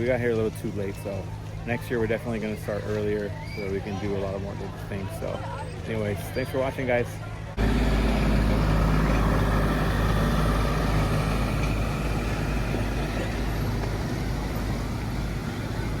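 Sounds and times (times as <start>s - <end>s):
motor vehicle rumble: 7.1s - 16.0s
even hum: 7.6s - 16.0s.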